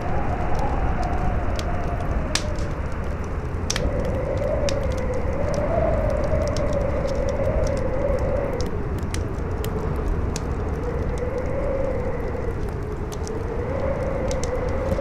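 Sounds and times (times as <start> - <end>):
campfire crackling: 0.0 - 15.0
strong wind howling: 0.0 - 15.0
sharp pops of fire: 2.3 - 2.8.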